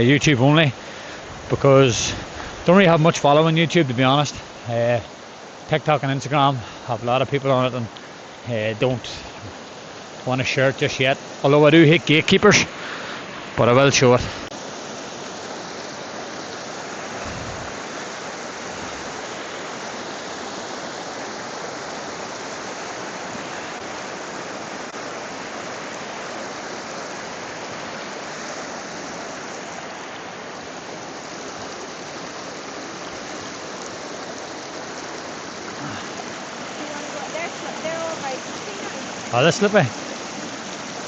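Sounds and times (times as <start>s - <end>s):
river running over rocks: 0.0s - 41.0s.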